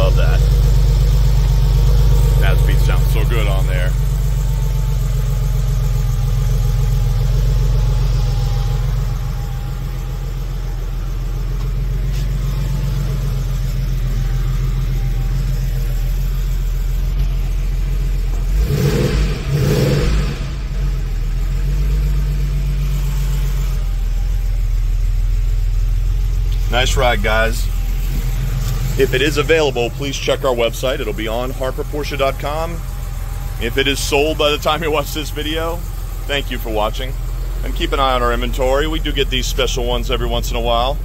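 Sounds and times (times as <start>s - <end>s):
car engine idling: 0.0s - 41.0s
engine revving bursts: 17.8s - 23.8s.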